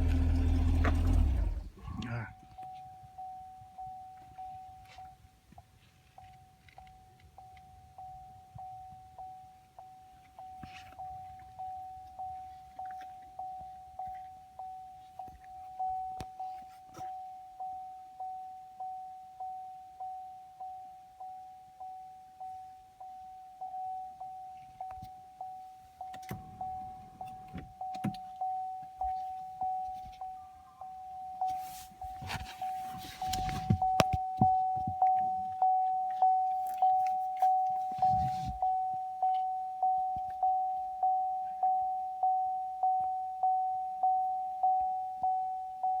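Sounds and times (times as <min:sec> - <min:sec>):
car warning chime: 0:00.0 - 0:46.0
rustling: 0:31.4 - 0:34.0.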